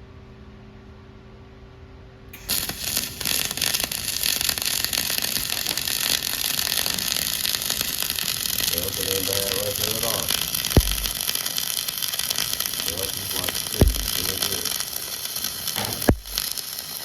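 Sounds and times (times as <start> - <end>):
welding arc crackling hiss: 2.4 - 17.0
low hum: 10.4 - 11.2.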